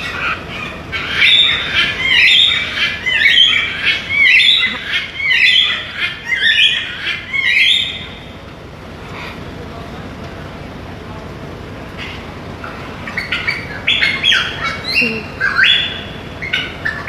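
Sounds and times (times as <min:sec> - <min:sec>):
parrot squawking: 0:00.0 - 0:08.3, 0:13.0 - 0:17.0.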